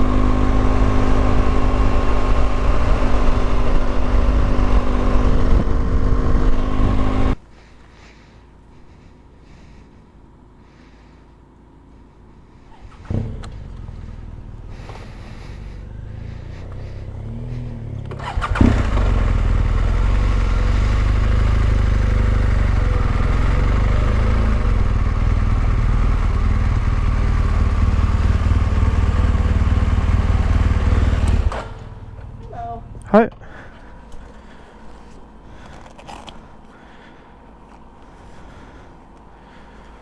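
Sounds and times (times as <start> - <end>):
motorcycle engine running: 0.0 - 7.4, 8.0 - 40.0.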